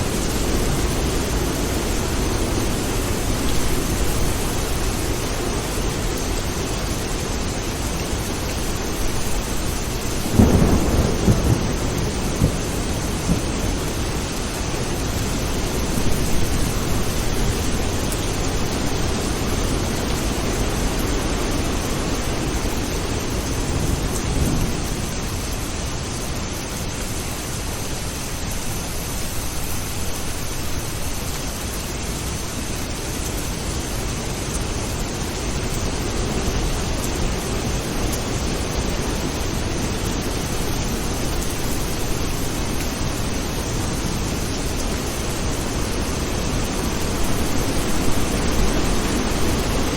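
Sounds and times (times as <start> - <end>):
heavy rain: 0.0 - 49.9
low rumble of thunder: 7.8 - 26.1.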